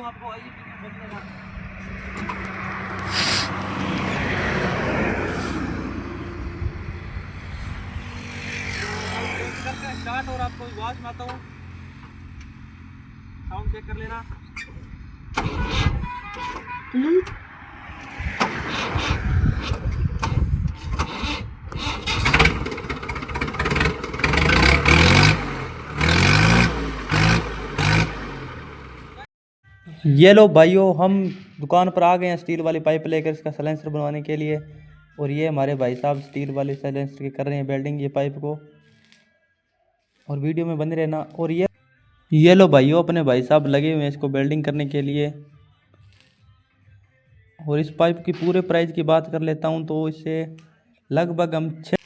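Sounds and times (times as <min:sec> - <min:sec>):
tractor engine exhaust note: 0:00.0 - 0:08.9, 0:09.5 - 0:29.3
short hiss: 0:03.0 - 0:03.6, 0:05.3 - 0:05.7.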